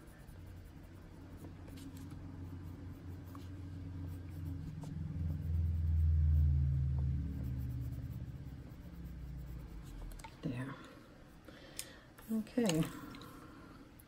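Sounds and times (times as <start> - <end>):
coloured pencil scratching paper: 0.0 - 10.6
low rumble: 2.1 - 10.2.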